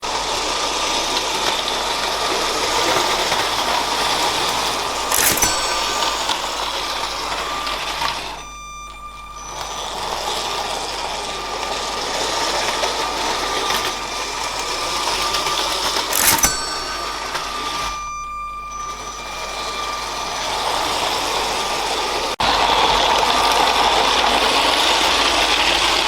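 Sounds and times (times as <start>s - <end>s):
toy train electric motor whirring: 0.0s - 26.0s
sharp click: 4.4s - 11.3s, 12.4s - 20.5s.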